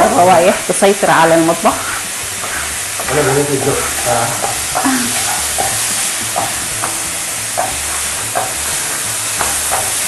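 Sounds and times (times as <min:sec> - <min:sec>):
chicken sizzling in frying pan: 0:00.0 - 0:10.0
knife chopping on wooden board: 0:02.4 - 0:03.8, 0:04.4 - 0:08.7.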